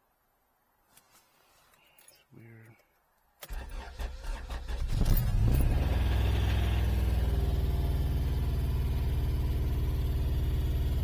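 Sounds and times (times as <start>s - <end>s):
car engine idling: 3.5s - 11.0s.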